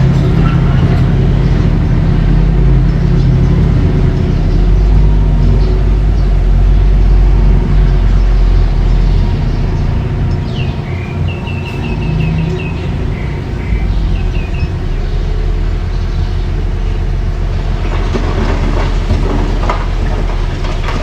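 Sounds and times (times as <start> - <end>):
bulldozer engine running: 0.0 - 21.0
bird chirping: 2.9 - 17.1.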